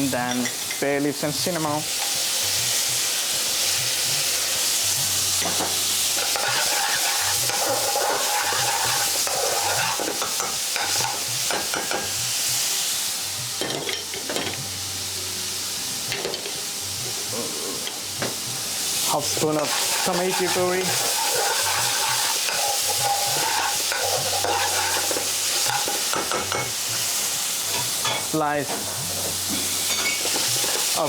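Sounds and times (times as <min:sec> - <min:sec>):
oil sizzling in a pan: 0:00.0 - 0:31.0
utensil scraping a pan: 0:06.2 - 0:11.2, 0:19.3 - 0:26.7.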